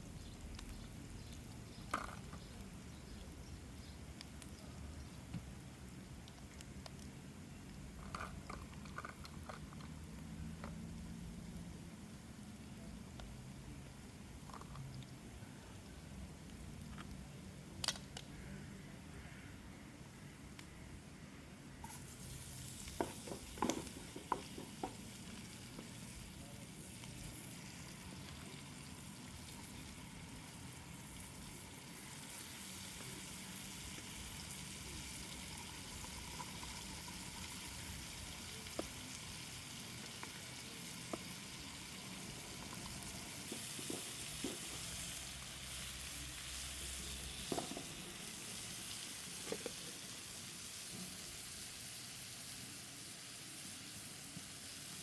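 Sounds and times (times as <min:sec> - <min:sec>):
food sizzling in a pan: 0:21.8 - 0:55.0.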